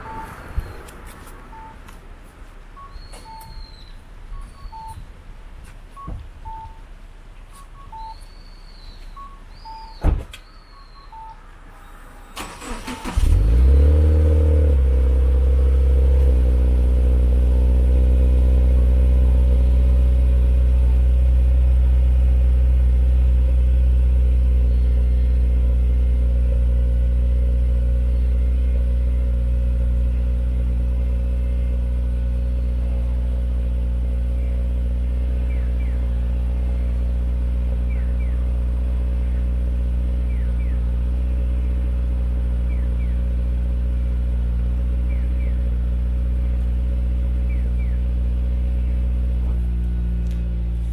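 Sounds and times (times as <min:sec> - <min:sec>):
short electronic beeps: 0:00.0 - 0:00.9, 0:01.5 - 0:01.8, 0:02.8 - 0:05.0, 0:07.5 - 0:08.4, 0:09.0 - 0:11.4
car engine idling: 0:00.0 - 0:07.4, 0:11.1 - 0:50.9.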